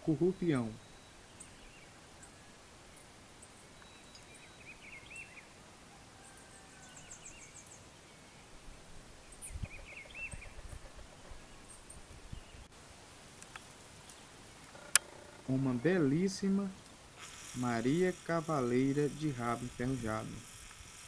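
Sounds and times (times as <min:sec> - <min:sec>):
bird chirps: 0:00.0 - 0:05.6, 0:06.2 - 0:12.7
outdoor hiss: 0:00.0 - 0:21.0
high twitter: 0:17.2 - 0:21.0.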